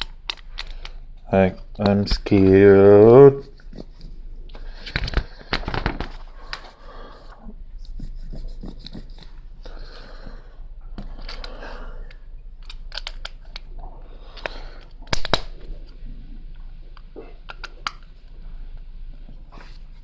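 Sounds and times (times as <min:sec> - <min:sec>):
sharp plastic clicks: 0:12.6 - 0:13.7, 0:14.4 - 0:15.6.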